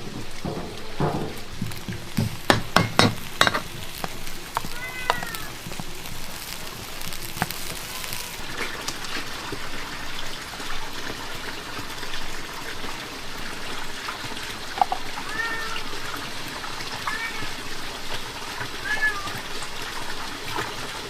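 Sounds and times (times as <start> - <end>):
heavy rain: 0.0 - 21.0
sharp knocks: 0.4 - 3.7
animal calls like meows: 4.6 - 5.6, 15.2 - 16.0, 18.8 - 19.4.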